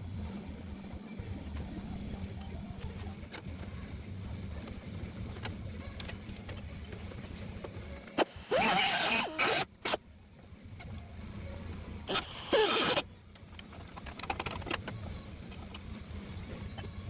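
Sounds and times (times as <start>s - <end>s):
metalworking tool humming: 6.9s - 10.0s, 12.0s - 13.0s.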